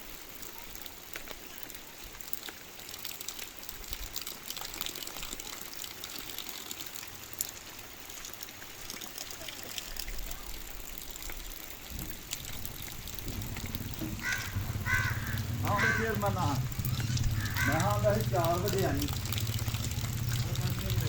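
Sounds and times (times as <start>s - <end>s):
heavy rain falling: 9.4s - 21.0s.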